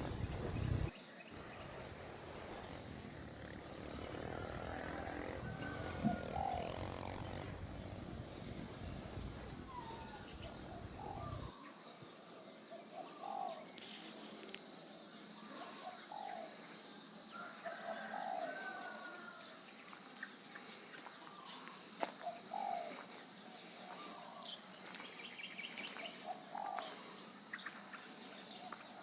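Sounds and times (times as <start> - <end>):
low background rumble: 0.0 - 3.6, 7.2 - 11.5
birds calling: 0.0 - 11.6.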